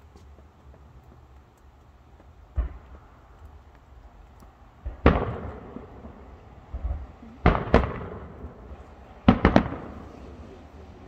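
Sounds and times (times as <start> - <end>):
faint low thuds: 2.1 - 4.2
distant firework bangs: 2.5 - 3.4, 4.8 - 10.7.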